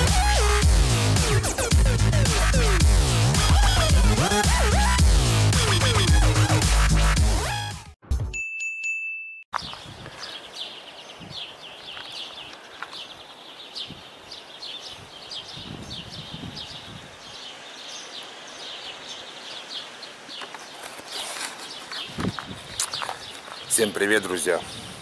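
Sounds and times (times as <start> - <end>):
small birds chirping: 9.6 - 25.0
wind hiss on microphone: 11.0 - 11.6, 13.6 - 20.2, 24.5 - 25.0.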